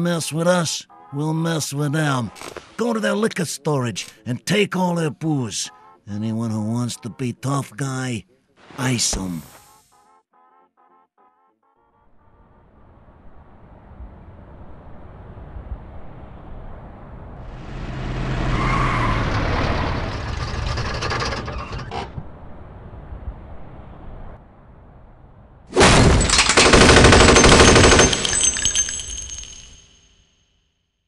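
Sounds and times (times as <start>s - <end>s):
car engine driving up: 12.6s - 25.7s
submachine gun firing burst: 26.2s - 28.4s.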